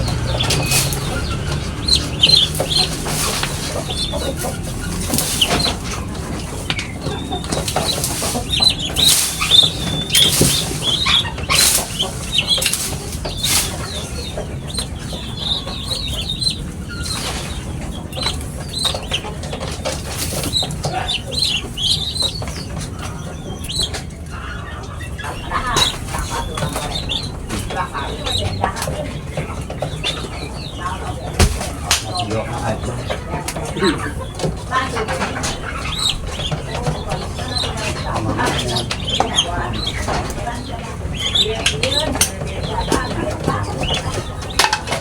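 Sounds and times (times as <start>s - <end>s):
sharp rustles: 0.0s - 22.4s
small birds chirping: 0.0s - 45.0s.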